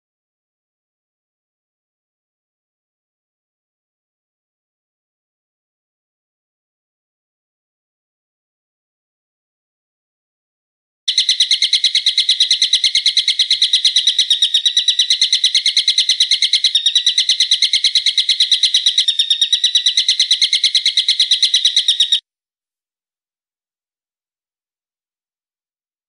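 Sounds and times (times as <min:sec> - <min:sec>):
bird rattling trill: 0:11.1 - 0:22.2.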